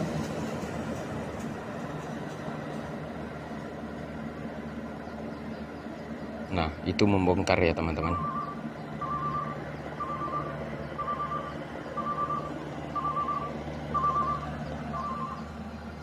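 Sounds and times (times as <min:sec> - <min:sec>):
combine harvester engine hum: 0:00.0 - 0:16.0
short pulsed warning beeps: 0:08.1 - 0:15.5.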